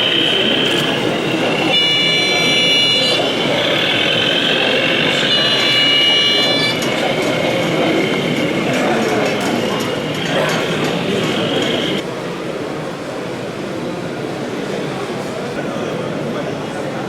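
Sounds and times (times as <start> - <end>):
crowd chatter: 0.0 - 17.0.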